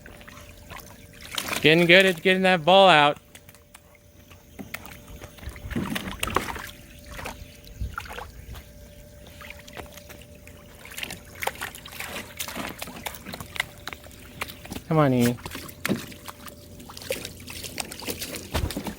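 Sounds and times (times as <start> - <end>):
faint steady hum: 0.0 - 18.9
dog splashing in water: 0.3 - 1.9, 9.4 - 18.9.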